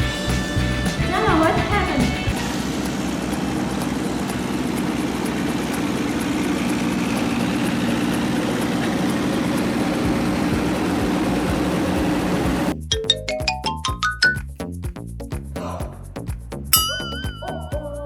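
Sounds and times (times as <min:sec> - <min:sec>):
engine idling: 0:00.0 - 0:12.8.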